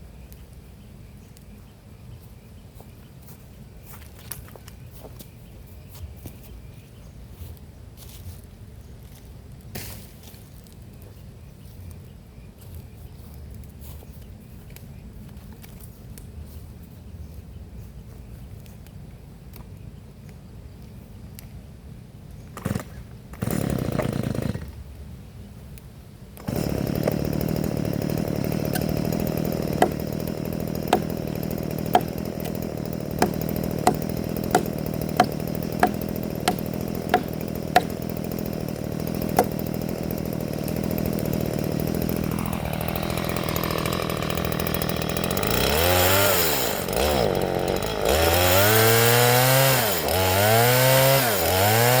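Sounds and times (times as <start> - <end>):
chainsaw cutting wood: 22.6 - 24.9, 26.4 - 52.0.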